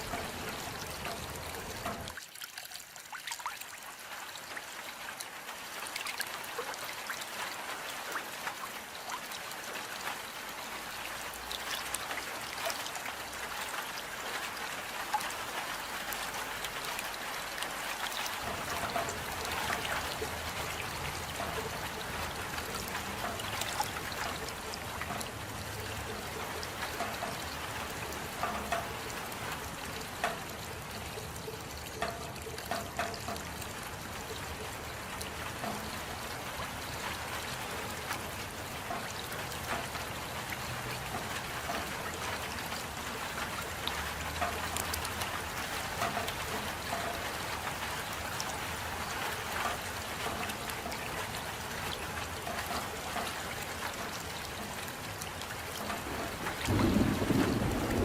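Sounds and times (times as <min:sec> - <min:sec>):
steady rain: 0:00.0 - 0:58.0
trickling water: 0:00.0 - 0:58.0
drops ticking: 0:18.0 - 0:58.0.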